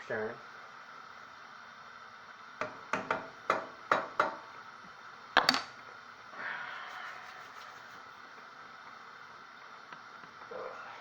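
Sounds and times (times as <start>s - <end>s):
spoon knocking against pot: 2.6s - 4.5s.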